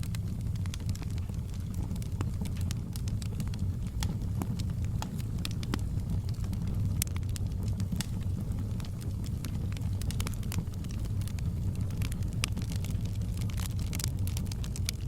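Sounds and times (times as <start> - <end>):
fire crackling and popping: 0.0 - 15.0
fire low rumble: 0.0 - 15.0.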